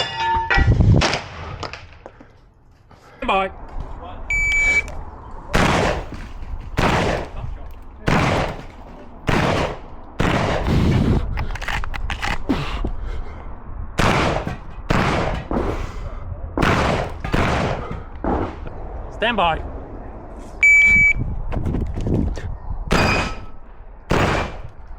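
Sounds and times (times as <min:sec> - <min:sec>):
shotgun firing: 0:05.6 - 0:06.2, 0:06.8 - 0:07.4, 0:08.1 - 0:10.9, 0:14.0 - 0:15.6, 0:16.6 - 0:18.0, 0:22.9 - 0:23.4, 0:24.1 - 0:24.6
shells being loaded clicks: 0:11.4 - 0:12.5.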